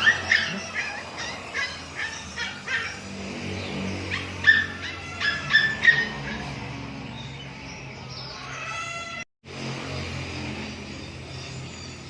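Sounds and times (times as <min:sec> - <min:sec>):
dog barking in high yips: 0:00.0 - 0:03.2, 0:04.1 - 0:06.6.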